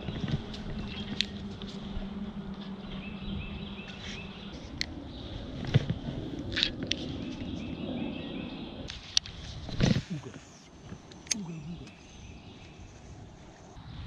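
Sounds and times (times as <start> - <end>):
steady low hum: 0.0 - 14.0
wind rumbling on microphone: 0.0 - 14.0.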